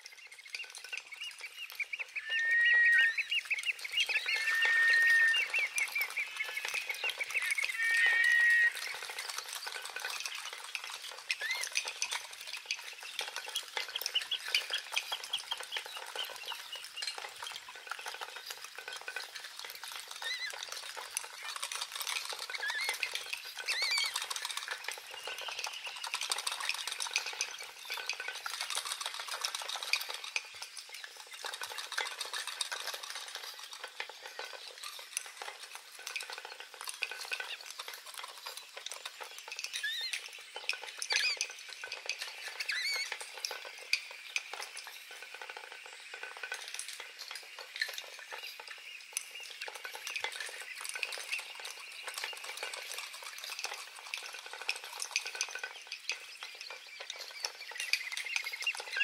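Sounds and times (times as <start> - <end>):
dense crackle of fine clicks: 0.0 - 59.0
short chirping calls: 0.1 - 9.6.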